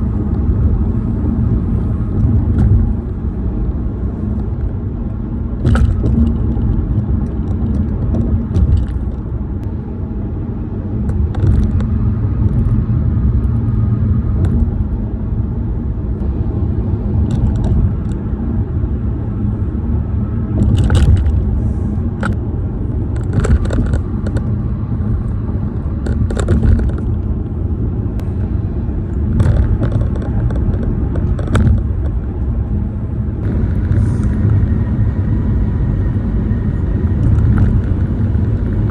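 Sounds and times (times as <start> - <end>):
tire and road rumble: 0.0 - 38.9
interior plastics rattling: 5.6 - 9.3, 23.1 - 24.5, 26.0 - 27.4, 29.2 - 32.5
clicks and knocks from joints: 23.2 - 24.5, 29.3 - 32.2.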